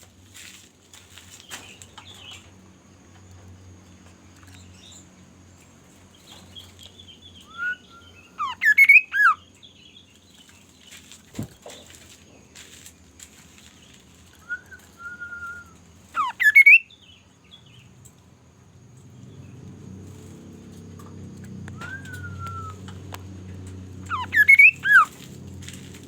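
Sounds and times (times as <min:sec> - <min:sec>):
bird whistling song: 0:06.5 - 0:10.0, 0:14.4 - 0:17.8, 0:21.6 - 0:23.0, 0:24.1 - 0:25.2.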